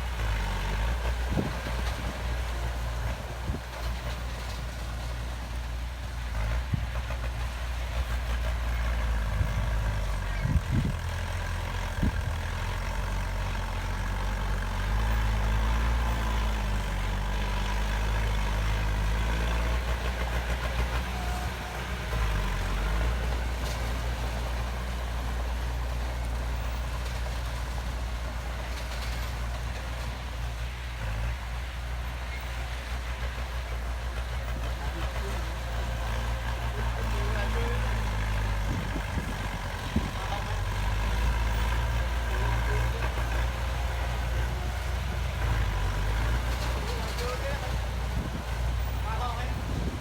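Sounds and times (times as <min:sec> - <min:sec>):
heavy diesel engine running: 0:00.0 - 0:50.0.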